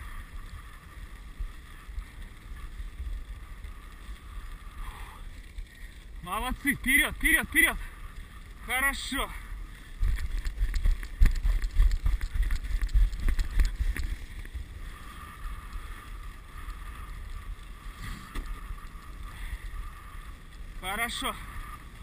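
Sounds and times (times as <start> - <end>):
sled runners rattling on snow: 0.0 - 22.0.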